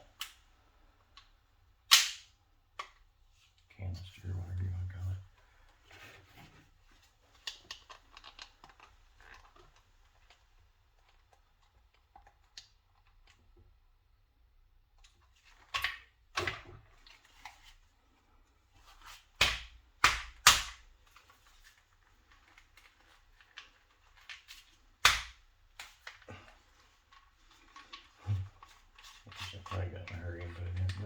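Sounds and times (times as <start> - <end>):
clicks and handling noises: 20.4 - 31.0.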